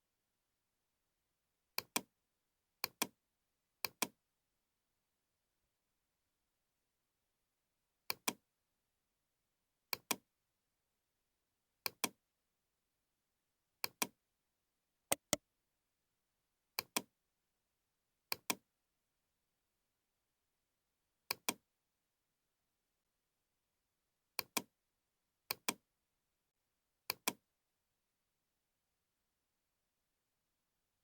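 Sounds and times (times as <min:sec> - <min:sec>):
computer mouse double-clicking: 0:15.1 - 0:15.4.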